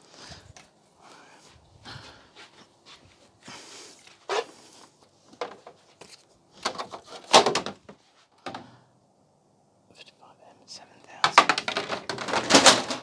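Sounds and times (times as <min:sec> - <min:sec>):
plastic and metal parts clacking: 0:05.3 - 0:08.6, 0:11.2 - 0:13.0.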